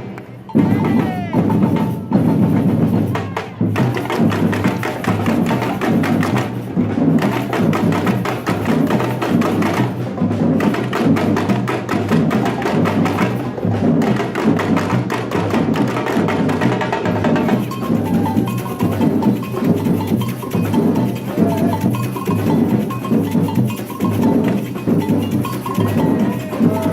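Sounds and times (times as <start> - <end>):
high-pitched percussion strokes: 0.0 - 10.0, 17.2 - 26.9
samba percussion group: 0.0 - 26.9.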